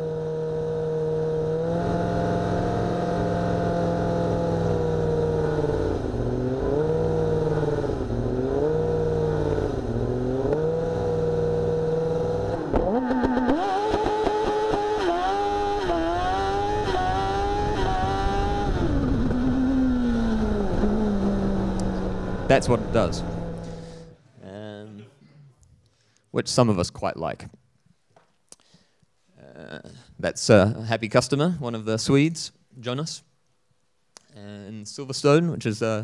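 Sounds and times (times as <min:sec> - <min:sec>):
car engine revving and accelerating: 0:00.0 - 0:24.1.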